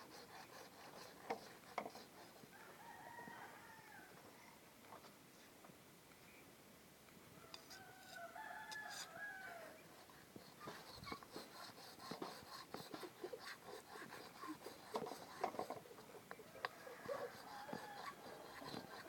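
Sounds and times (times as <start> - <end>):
rooster crowing: 2.5 - 4.6, 7.4 - 9.8, 16.4 - 19.0.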